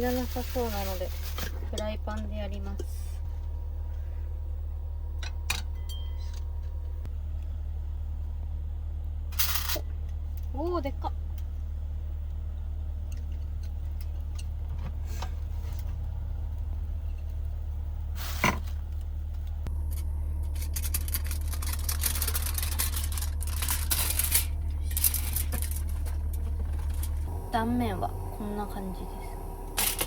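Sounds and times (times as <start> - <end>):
crackling crinkling handling sounds: 0.0 - 1.8, 19.8 - 27.3
steady low hum: 0.0 - 30.0.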